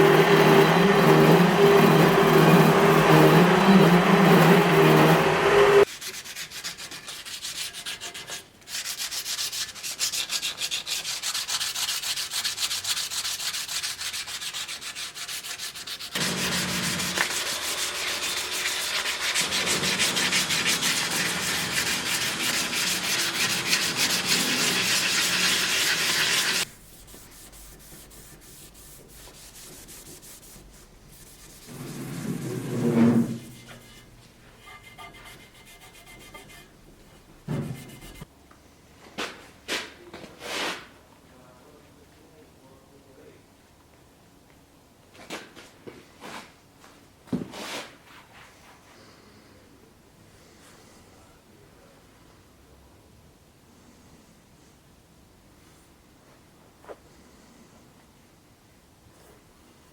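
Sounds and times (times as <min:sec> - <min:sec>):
machine hum: 0:00.0 - 0:05.8
steel blade being sanded: 0:00.0 - 0:32.2, 0:33.2 - 0:36.7, 0:37.7 - 0:38.3.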